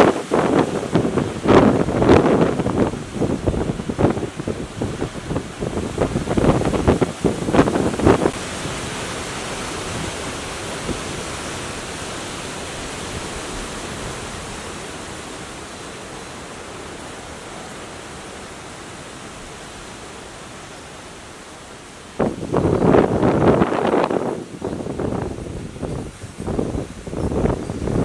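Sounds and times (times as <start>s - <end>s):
strong wind roaring: 0.0s - 15.4s, 22.2s - 28.0s.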